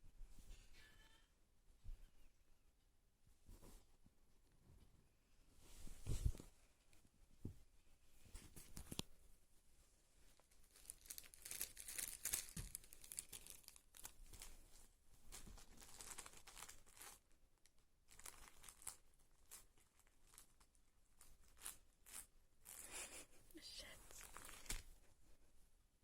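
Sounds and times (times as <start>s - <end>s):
paper tissues rustling and ripping: 10.7s - 14.6s, 15.3s - 17.2s, 24.0s - 24.9s.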